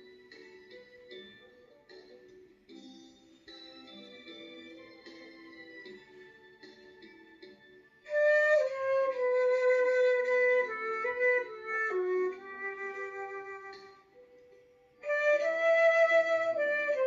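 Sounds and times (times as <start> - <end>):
soft backing accompaniment: 0.0 - 17.0
flute playing slow melody: 8.0 - 14.4, 15.0 - 17.0.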